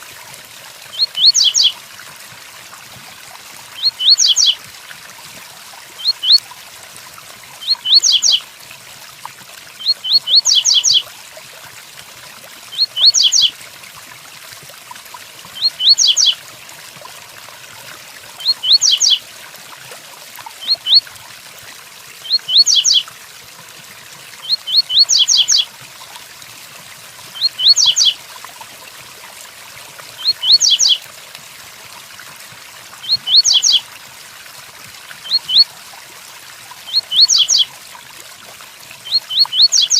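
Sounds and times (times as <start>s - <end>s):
rain hiss: 0.0s - 9.0s
bird whistled song phrase: 1.0s - 1.7s, 3.8s - 4.6s, 6.0s - 6.4s, 9.8s - 11.0s, 12.8s - 13.5s, 15.6s - 16.3s, 18.4s - 19.2s, 22.3s - 23.0s, 24.5s - 25.6s, 27.4s - 28.2s, 30.2s - 31.0s, 33.0s - 33.8s, 36.9s - 37.7s.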